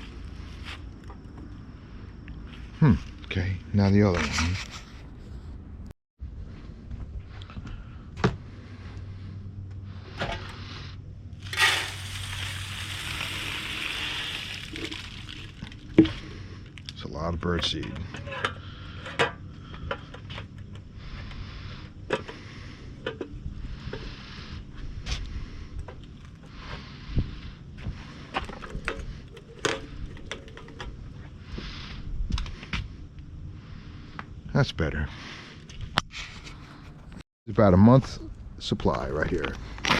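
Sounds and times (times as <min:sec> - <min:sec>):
bird seed pouring into feeder: 0:11.4 - 0:15.9
wind rumble on microphone: 0:26.9 - 0:34.5.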